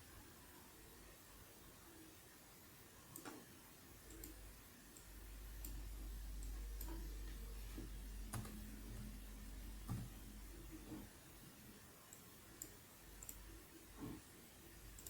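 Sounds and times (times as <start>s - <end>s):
faint scattered clicks: 3.1s - 3.4s, 4.0s - 9.1s, 12.1s - 13.6s
router low hum: 3.9s - 15.0s.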